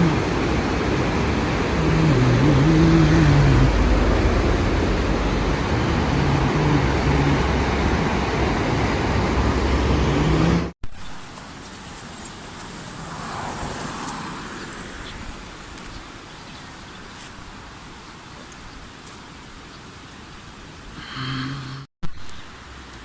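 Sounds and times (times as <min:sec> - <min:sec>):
vehicle passing by: 0:00.0 - 0:10.7, 0:12.8 - 0:15.9
vehicle engine hum: 0:00.0 - 0:17.4
outdoor traffic ambience: 0:00.0 - 0:23.0.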